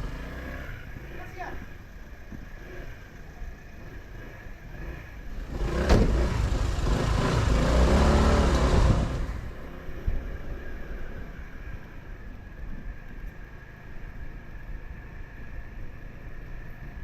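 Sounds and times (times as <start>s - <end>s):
motorcycle engine rumble: 0.0s - 17.0s
engine and wind rushing: 1.7s - 17.0s.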